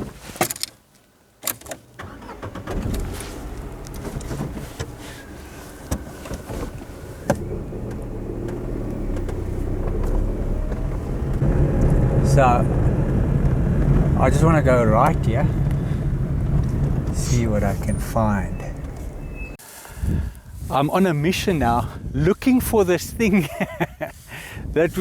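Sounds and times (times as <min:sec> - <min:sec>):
car engine running: 0:02.0 - 0:19.6.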